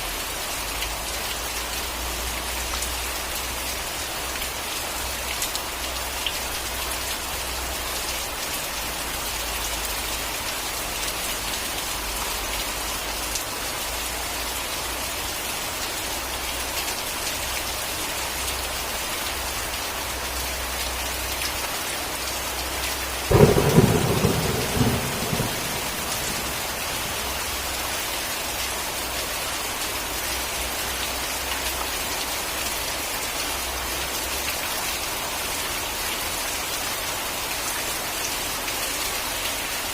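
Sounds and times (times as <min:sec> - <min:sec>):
heavy rain falling: 0:00.0 - 0:39.9
thunderclap rumbling: 0:23.3 - 0:27.7.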